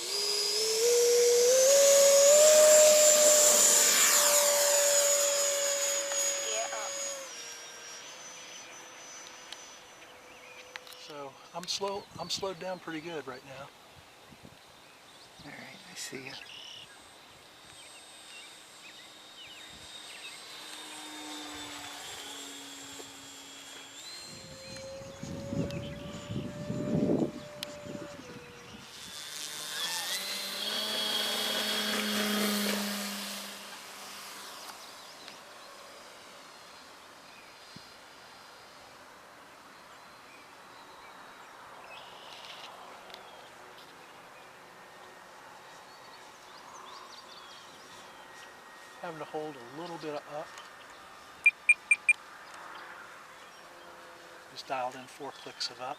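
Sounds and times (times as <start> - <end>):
model airplane motor whine: 0.0 - 13.4, 14.1 - 55.9
faint bird chirps: 14.1 - 21.2, 45.6 - 54.0
insects: 14.5 - 31.8.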